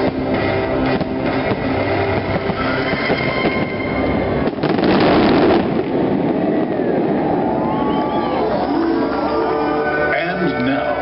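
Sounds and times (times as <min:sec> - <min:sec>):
show music with held notes: 0:00.0 - 0:04.6, 0:08.0 - 0:11.0
fireworks bursting and crackling: 0:00.0 - 0:09.2.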